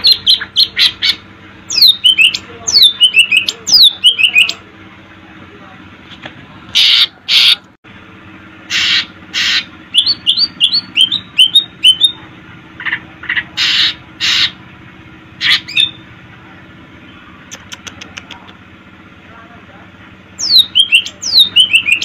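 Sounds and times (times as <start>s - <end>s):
bird harsh calls: 0.0s - 4.6s, 6.7s - 7.7s, 8.6s - 12.2s, 12.8s - 14.6s, 15.4s - 16.1s, 20.4s - 22.0s
bird rising chirps: 8.7s - 12.2s, 20.4s - 22.0s.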